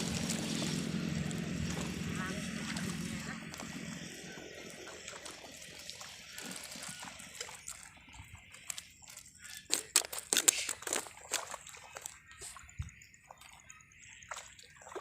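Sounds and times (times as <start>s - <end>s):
sharp water splashes: 0.0s - 15.0s
water sloshing and trickling: 0.0s - 15.0s.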